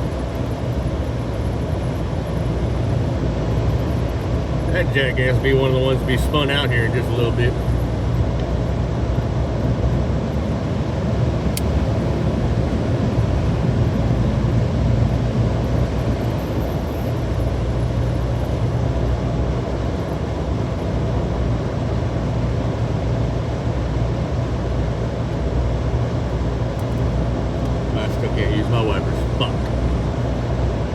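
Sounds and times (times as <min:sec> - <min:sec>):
road and engine noise in car: 0:00.0 - 0:30.9
faint click: 0:11.5 - 0:11.8.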